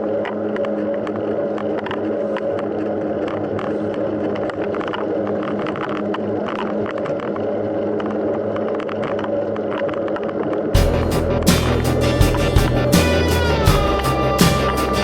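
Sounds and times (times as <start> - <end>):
low hum: 10.5 - 15.0
music: 10.8 - 15.0.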